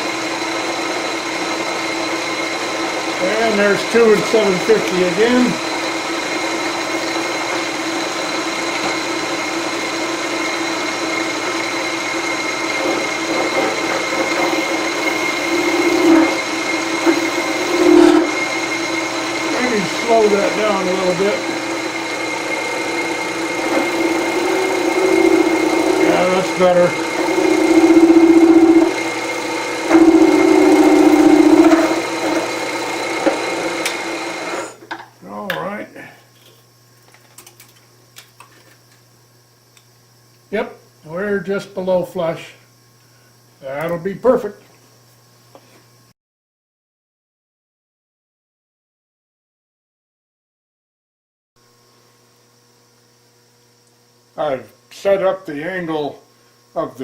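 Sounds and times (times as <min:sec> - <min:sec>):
loud fast-pulsing buzz: 0:00.0 - 0:34.8
milling machine humming and whining: 0:00.0 - 0:36.8.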